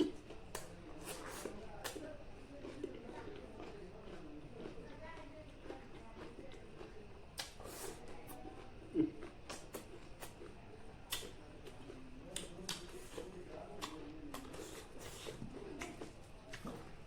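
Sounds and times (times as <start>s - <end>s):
mouth clicks and smacks chewing: 7.4s - 8.0s, 11.1s - 11.4s, 12.3s - 16.8s.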